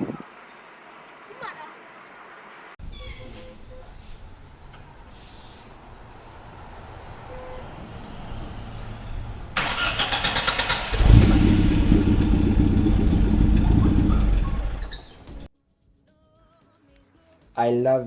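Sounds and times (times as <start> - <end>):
low rumble: 2.9 - 15.5
engine running loudly: 5.7 - 15.5
starter motor cranking: 5.7 - 15.5.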